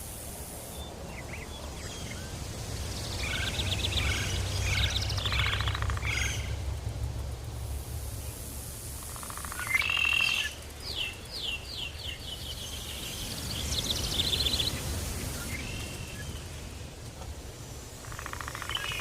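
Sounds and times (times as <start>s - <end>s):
steady low rumble: 0.4s - 9.4s
wild birds calling: 3.0s - 6.8s, 9.0s - 16.5s, 18.0s - 19.0s.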